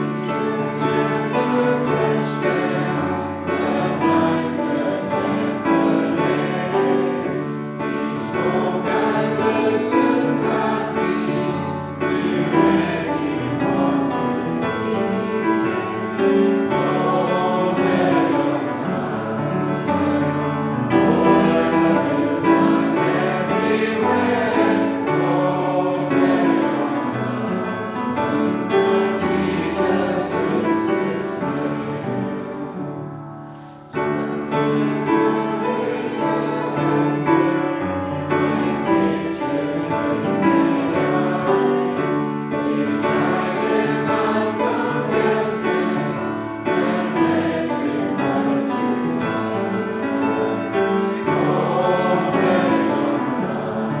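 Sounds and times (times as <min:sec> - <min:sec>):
congregation singing a hymn: 0:00.0 - 0:54.0.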